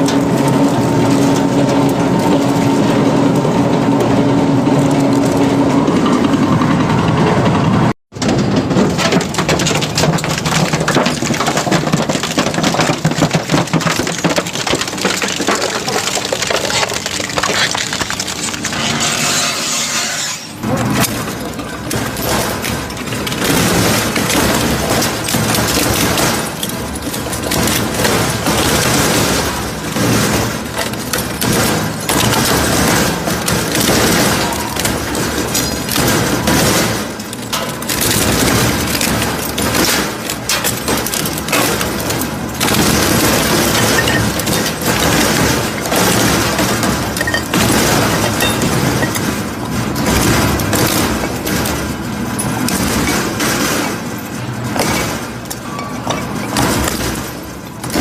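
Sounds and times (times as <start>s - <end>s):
crusher machine clattering: 0.0s - 58.0s.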